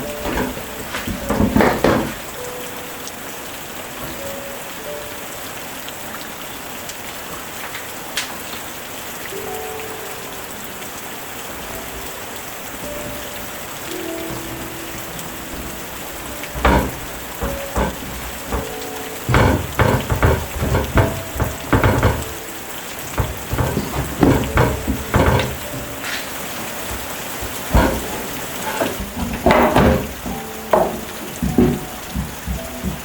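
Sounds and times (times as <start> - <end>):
irregular knocks and clinks: 0.0 - 2.4, 12.8 - 33.0
steady rain falling: 0.0 - 33.0.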